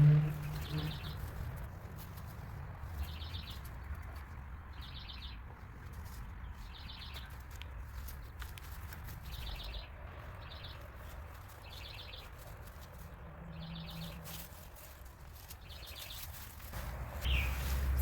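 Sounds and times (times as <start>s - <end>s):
bird high rapid trills: 0.0s - 1.3s.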